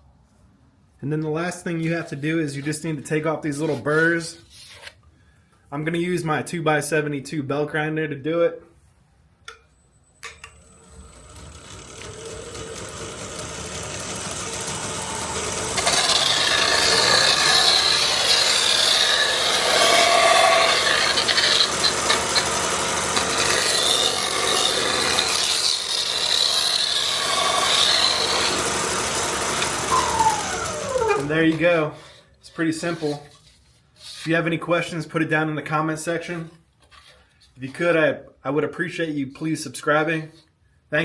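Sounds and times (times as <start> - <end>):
belt grinder motor spinning: 10.5 - 32.2
sanding belt rasping on metal: 14.6 - 28.8.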